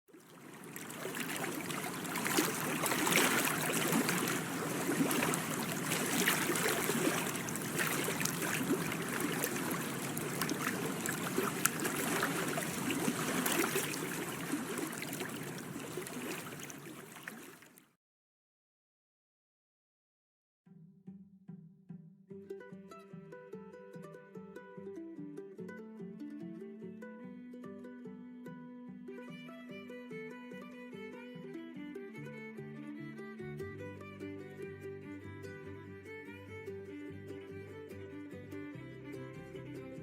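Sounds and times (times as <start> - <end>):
small water splashes: 0.1 - 17.9
water lapping and trickling: 0.1 - 18.0, 33.2 - 40.0.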